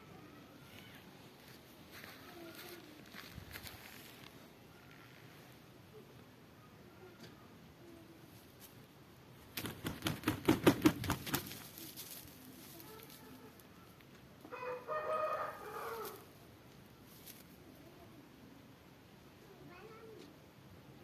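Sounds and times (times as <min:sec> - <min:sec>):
wings flapping: 0:09.4 - 0:13.0
rooster crowing: 0:14.5 - 0:16.2.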